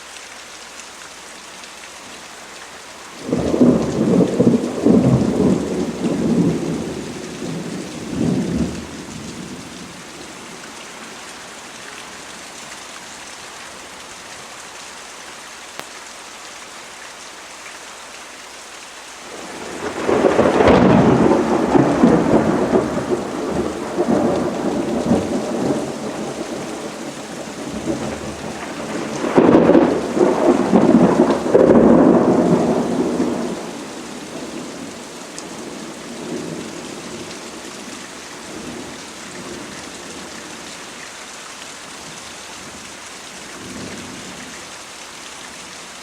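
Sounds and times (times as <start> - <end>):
rain falling: 0.0 - 46.0
thunder rolling: 3.2 - 9.5, 19.3 - 33.7.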